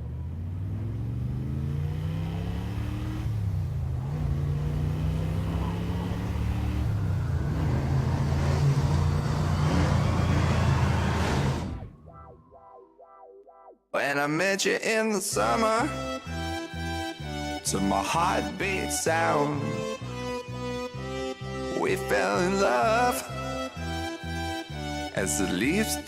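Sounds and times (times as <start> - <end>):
vehicle engine accelerating: 0.0 - 12.6.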